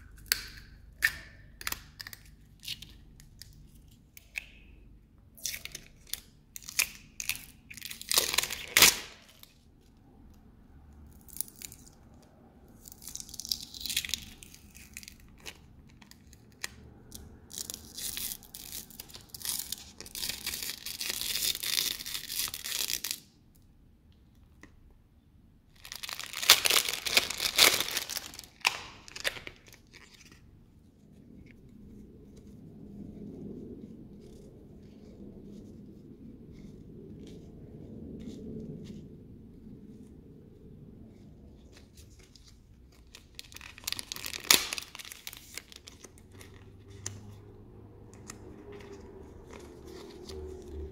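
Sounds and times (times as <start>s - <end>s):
packaging tearing and crinkling: 5.4s - 9.6s, 12.8s - 23.3s, 25.8s - 30.4s, 42.0s - 47.4s.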